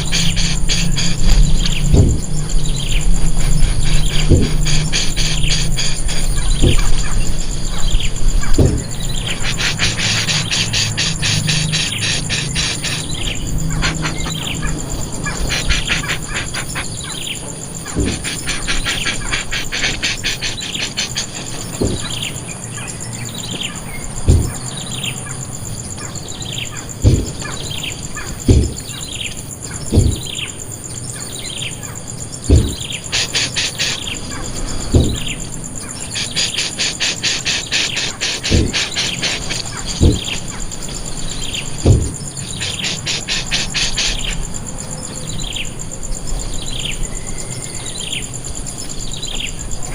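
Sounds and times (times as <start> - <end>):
bird chirping: 0.0 - 49.9
insect buzzing: 0.0 - 49.9
short low thumps: 1.2 - 2.8, 3.7 - 4.9, 6.5 - 7.1, 8.5 - 9.2, 21.8 - 22.2, 24.2 - 24.7, 27.0 - 27.5, 28.4 - 28.9, 29.9 - 30.4, 32.5 - 32.9, 34.9 - 35.5, 40.0 - 40.4, 41.8 - 42.3.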